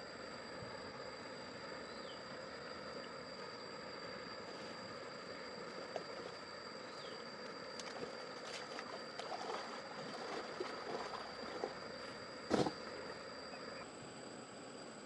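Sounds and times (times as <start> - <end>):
faint high-pitched whine: 0.0 - 15.0
water splashing: 7.8 - 11.8.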